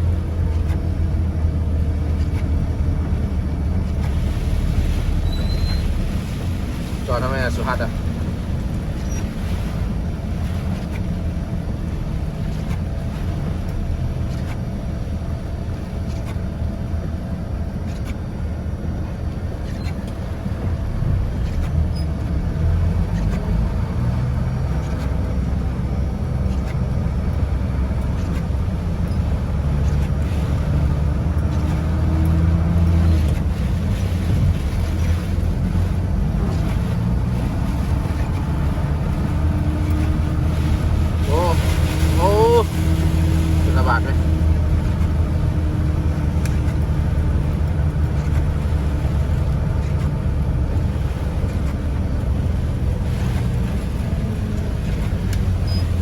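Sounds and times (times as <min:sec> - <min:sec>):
vehicle running: 0:00.0 - 0:56.0
heavy rain: 0:32.7 - 0:47.9.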